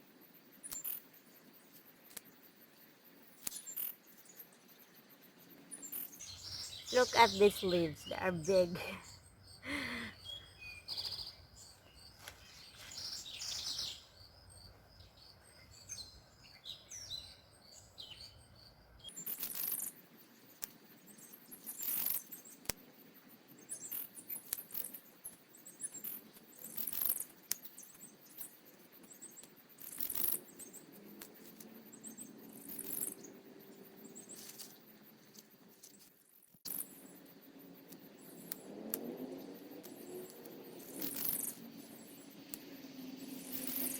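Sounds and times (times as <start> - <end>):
songbirds chirping: 0.0 - 26.8.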